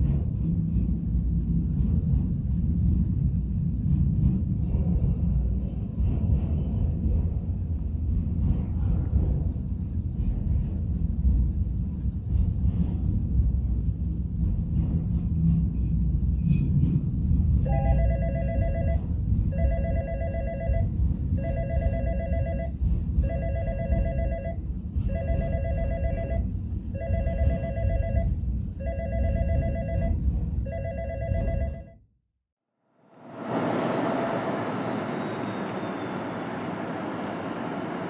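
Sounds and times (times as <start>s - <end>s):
freight train rumbling past: 0.0s - 28.8s, 33.1s - 38.0s
electronic ringing bell: 17.7s - 19.0s, 19.6s - 20.8s, 21.4s - 22.7s, 23.3s - 26.4s, 27.0s - 32.0s.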